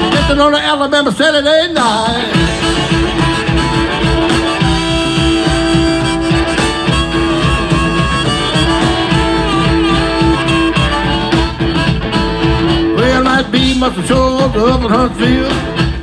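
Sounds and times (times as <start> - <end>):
blues band playing: 0.0 - 16.0
lead instrument holding long note: 2.4 - 13.0.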